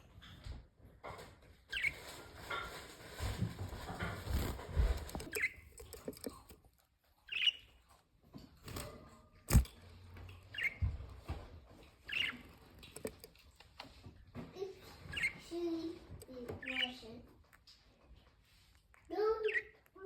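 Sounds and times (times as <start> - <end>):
parrots chirping: 5.0 - 6.4, 7.2 - 7.9, 10.4 - 11.0, 11.8 - 13.4, 15.0 - 15.5, 16.3 - 17.8, 18.5 - 20.0.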